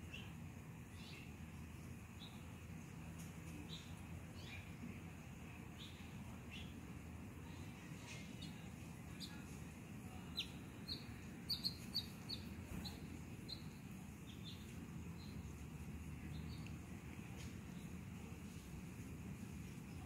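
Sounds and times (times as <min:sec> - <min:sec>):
small bird chirping: 0:00.1 - 0:01.4, 0:03.5 - 0:04.8, 0:05.7 - 0:06.8, 0:08.2 - 0:09.5, 0:10.1 - 0:16.8.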